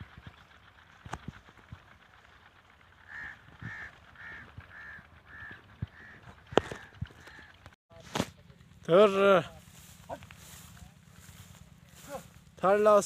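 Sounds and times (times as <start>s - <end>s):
bird calling: 2.6s - 7.8s
soft footsteps on field: 6.6s - 13.0s.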